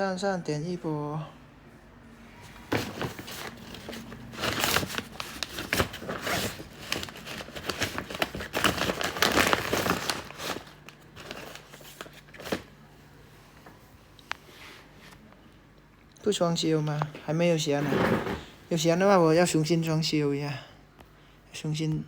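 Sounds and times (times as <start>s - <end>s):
crinkling and rustling: 2.4s - 12.8s, 16.9s - 18.8s.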